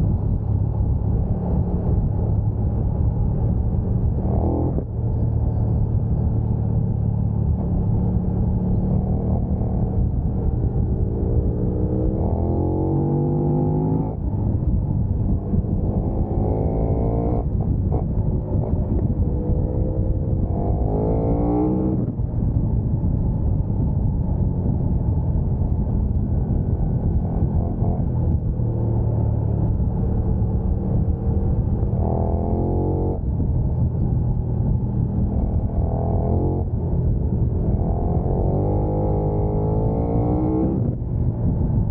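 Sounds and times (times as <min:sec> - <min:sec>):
wind rush over microphone: 0:00.0 - 0:41.9
motorcycle engine revving: 0:15.1 - 0:22.2, 0:26.4 - 0:33.5, 0:34.3 - 0:41.1.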